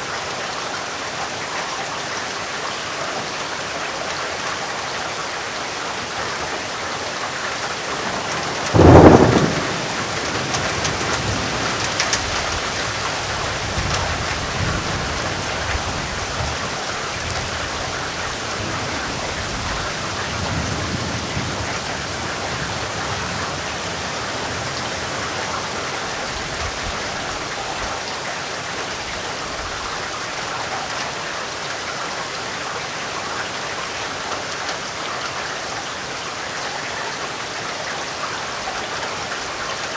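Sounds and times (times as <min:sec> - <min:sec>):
steady rain: 0:00.0 - 0:39.9
thunderclap and rumble: 0:08.0 - 0:17.9.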